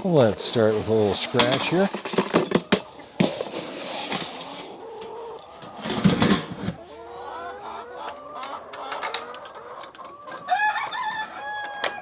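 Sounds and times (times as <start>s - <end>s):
hens clucking: 0.2s - 12.0s
drawn-out hen call: 6.8s - 12.0s.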